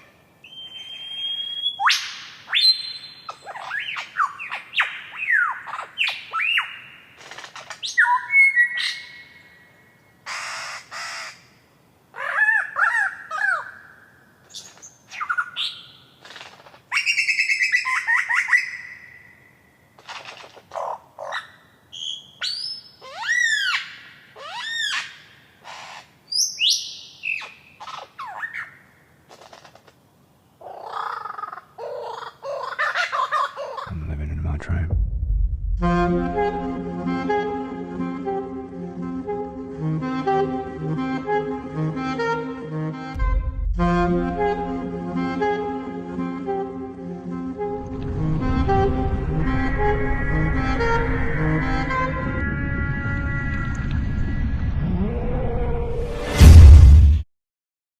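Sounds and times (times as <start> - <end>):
bird whistles squawks and chirps: 0.4 - 6.8, 7.8 - 9.3, 16.9 - 19.4, 21.3 - 28.8.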